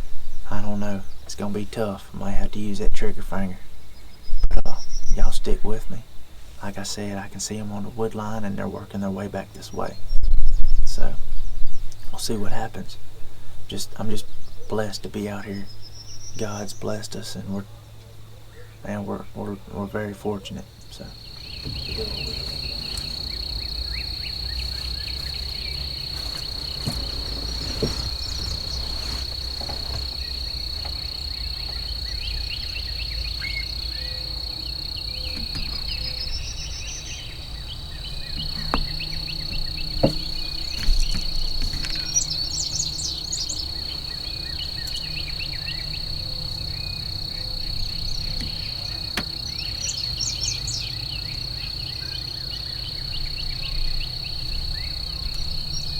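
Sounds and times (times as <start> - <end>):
insects trilling: 0.0 - 55.9
high bird chirps: 20.9 - 55.9
faint knocks: 21.1 - 31.9, 35.0 - 42.9.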